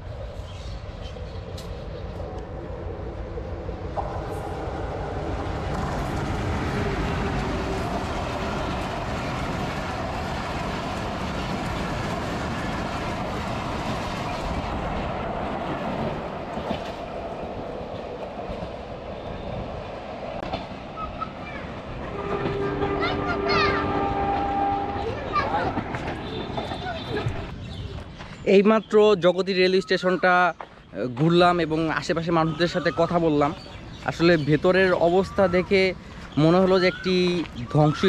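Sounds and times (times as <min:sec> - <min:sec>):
passenger train wheels on rails: 0:00.0 - 0:28.6.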